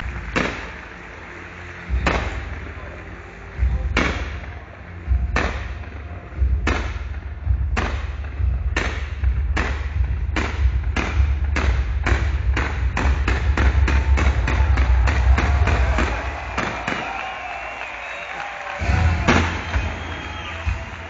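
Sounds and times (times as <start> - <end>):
fireworks bangs: 0.0 - 2.9, 10.4 - 21.0.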